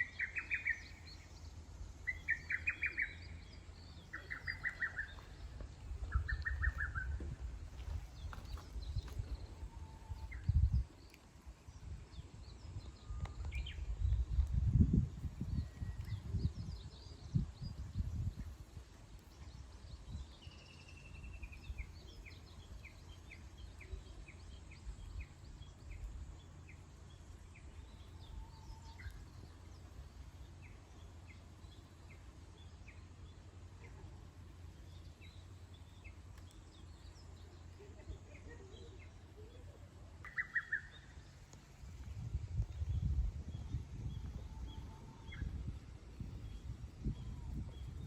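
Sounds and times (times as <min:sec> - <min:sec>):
birds chirping: 0:00.0 - 0:14.6, 0:19.3 - 0:48.0
steady low rumble: 0:00.0 - 0:48.0.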